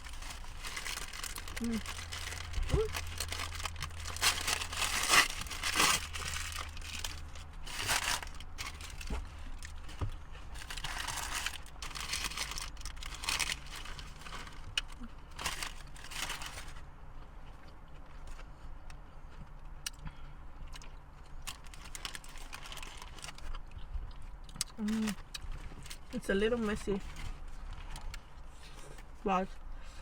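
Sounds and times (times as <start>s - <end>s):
paper wrapper crinkling: 0.0s - 16.8s, 21.4s - 23.5s.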